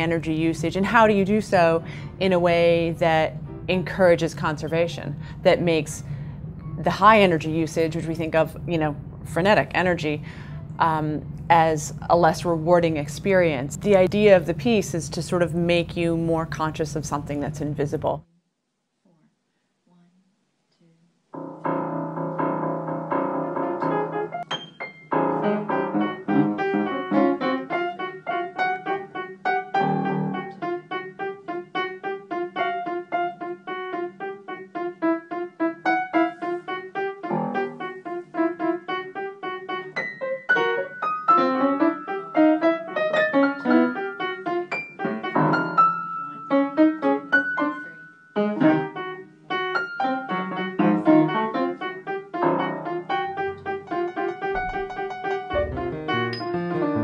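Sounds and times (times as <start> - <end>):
piano-like keyboard notes: 0.0 - 5.9, 21.4 - 57.0.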